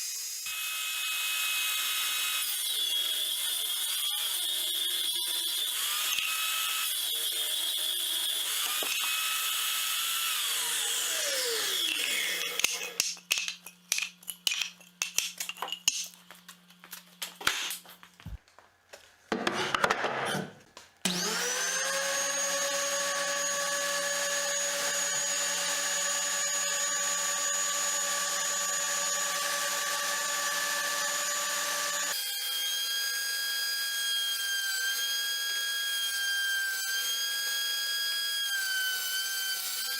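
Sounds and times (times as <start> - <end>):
power tool motor whining: 21.1 - 32.2.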